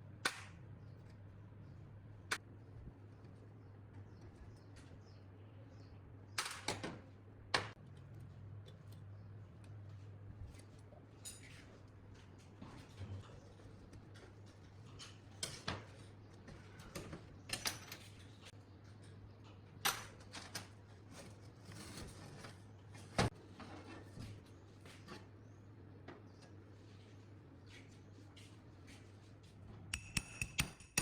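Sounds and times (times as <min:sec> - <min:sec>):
metal parts and tools clinking: 0:17.0 - 0:18.5.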